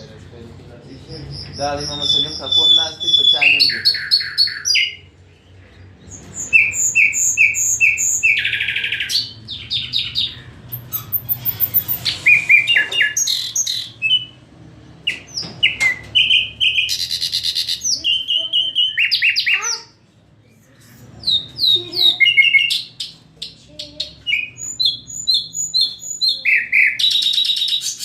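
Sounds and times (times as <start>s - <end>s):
nightingale singing: 1.2s - 5.1s, 15.1s - 19.9s, 21.2s - 28.0s.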